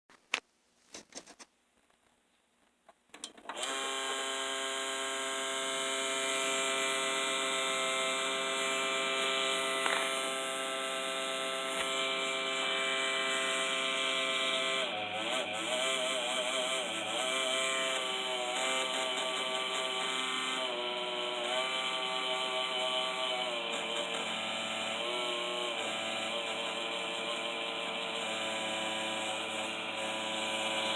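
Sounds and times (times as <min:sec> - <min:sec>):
graphics card buzzing: 0:08.6 - 0:15.8.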